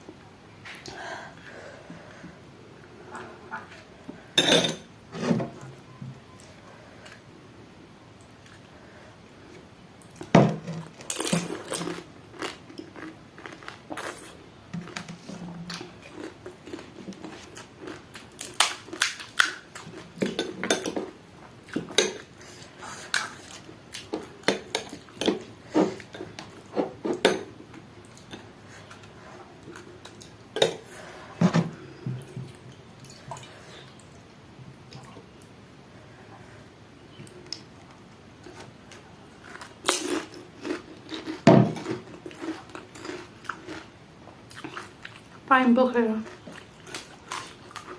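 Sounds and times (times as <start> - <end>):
dishes and cutlery clinking: 4.4 - 5.4, 20.2 - 21.1.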